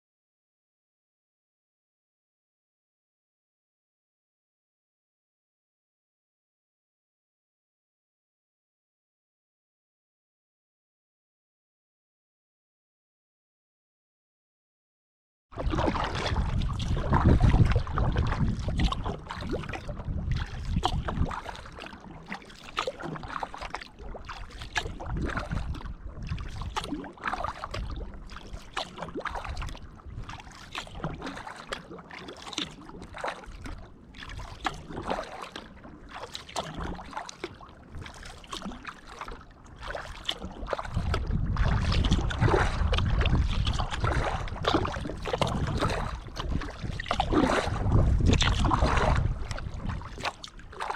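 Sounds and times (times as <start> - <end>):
wind rumble on microphone: 15.6 - 21.9, 23.6 - 31.5, 40.4 - 50.9
paddle splashing water: 15.6 - 50.9.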